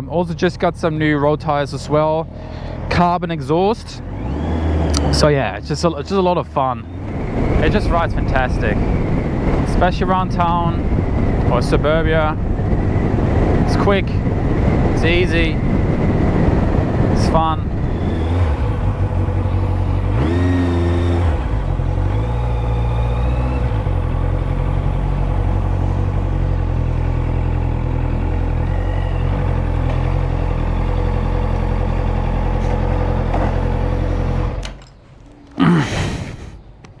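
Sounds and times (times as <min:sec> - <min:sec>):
motorcycle engine: 0:00.0 - 0:36.9
wind noise: 0:07.0 - 0:20.4.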